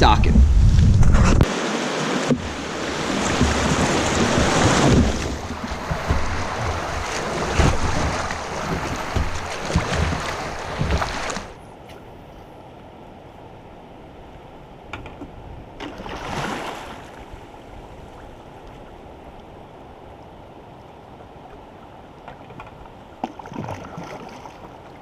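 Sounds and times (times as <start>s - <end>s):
wind on microphone: 0.0s - 1.5s
creek water rushing: 1.4s - 11.6s.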